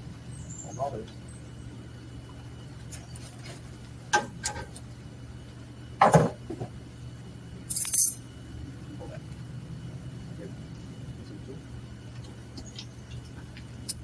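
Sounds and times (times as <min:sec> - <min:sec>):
metal hand tools clinking: 0:07.7 - 0:08.2.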